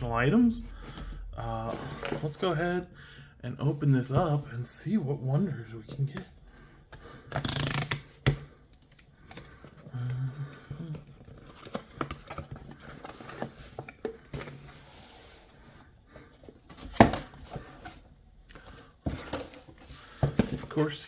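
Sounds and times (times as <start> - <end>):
cardboard packaging rustling: 8.8 - 21.0.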